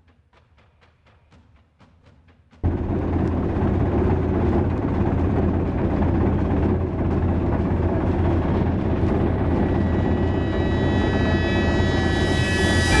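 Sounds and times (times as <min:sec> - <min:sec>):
boat engine droning: 0:02.7 - 0:13.0.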